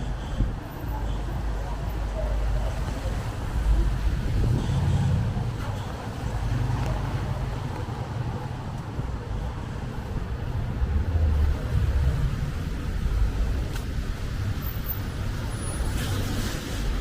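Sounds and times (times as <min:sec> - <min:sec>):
passing traffic: 0:00.0 - 0:17.0
wind rumble: 0:03.1 - 0:07.5.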